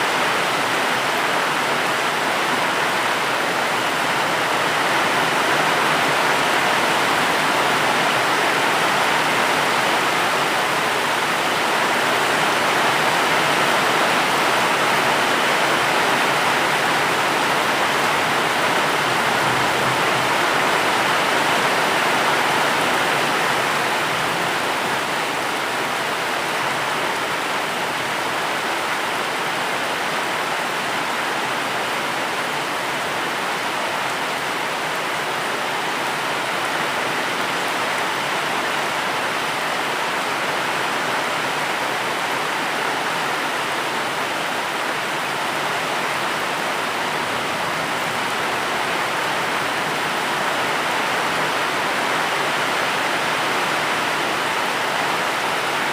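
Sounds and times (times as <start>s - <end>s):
heavy rain: 0.0s - 55.9s.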